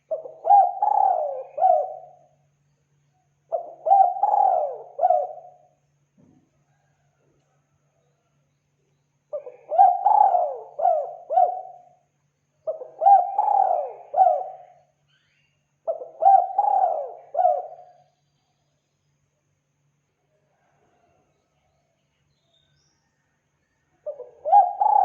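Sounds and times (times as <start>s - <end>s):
dove cooing: 0.0s - 2.3s, 3.5s - 5.8s, 9.3s - 12.0s, 12.6s - 14.9s, 15.8s - 18.0s, 24.0s - 25.0s.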